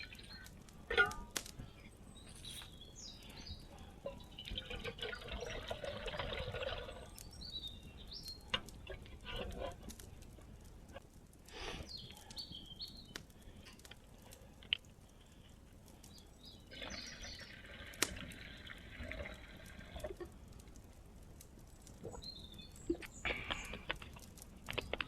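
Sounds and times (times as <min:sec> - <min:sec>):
water pouring: 0:04.1 - 0:07.3, 0:16.7 - 0:20.3.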